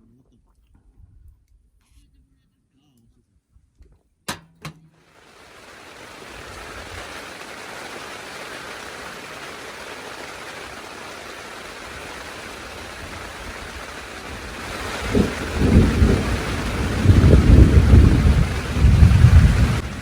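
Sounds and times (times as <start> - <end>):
steady rain: 5.1 - 20.0.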